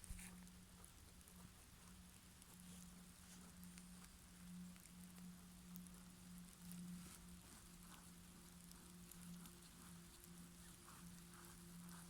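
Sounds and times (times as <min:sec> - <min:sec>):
faint low hum: 0:00.0 - 0:12.0
light ticks and crackles: 0:00.0 - 0:12.0.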